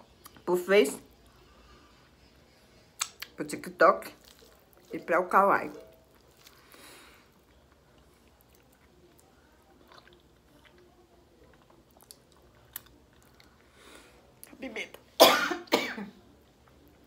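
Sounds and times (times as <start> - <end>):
faint chewing: 1.1 - 3.4, 4.0 - 14.6.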